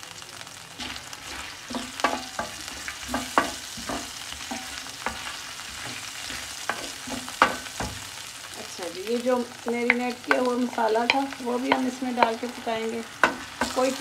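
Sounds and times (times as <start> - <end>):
garlic sizzling in oil: 0.0 - 14.0
wooden spatula scraping pan: 0.8 - 8.1.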